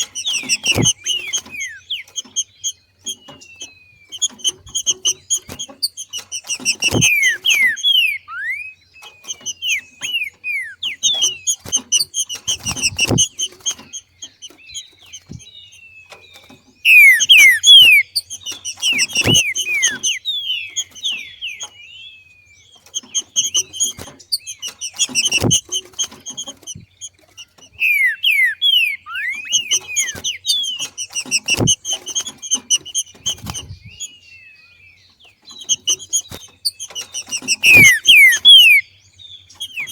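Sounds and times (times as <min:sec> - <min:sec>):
bird rapid falling chirps: 0:00.0 - 0:39.9.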